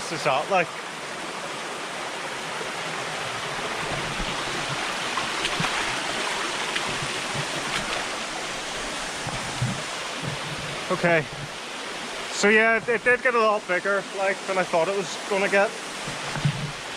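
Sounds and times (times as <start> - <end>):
waterfall rushing: 0.0 - 16.9.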